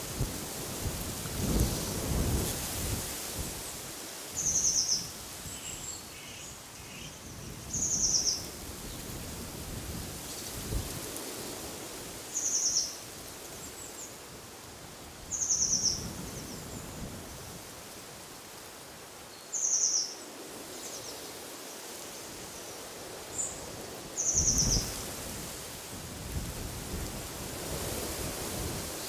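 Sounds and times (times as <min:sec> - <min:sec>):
rustling leaves: 0:00.0 - 0:29.0
wind: 0:00.0 - 0:29.0.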